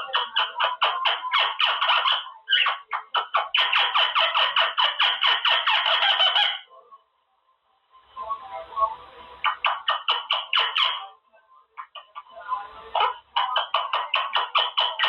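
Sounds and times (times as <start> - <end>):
parrot chattering harsh calls: 0.0 - 6.7, 9.4 - 11.1, 12.9 - 15.0.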